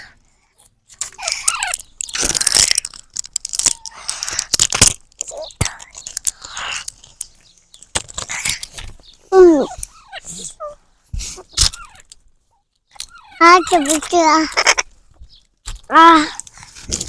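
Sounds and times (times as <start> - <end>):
parrot squeaky chirps: 9.6 - 10.8, 11.4 - 12.0, 13.0 - 14.8
parrot rasping: 13.0 - 14.8.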